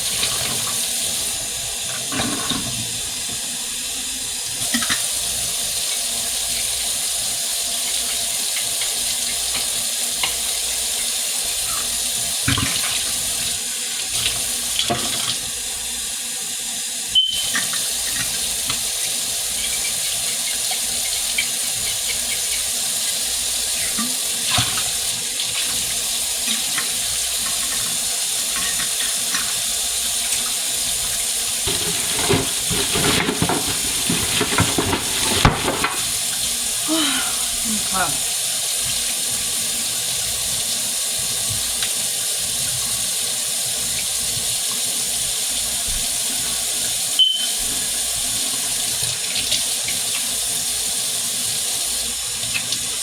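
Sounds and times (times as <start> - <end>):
items clattering in sink: 0.0 - 3.6, 4.6 - 7.2, 11.6 - 15.6, 17.2 - 37.5
faucet running into sink: 0.0 - 53.0.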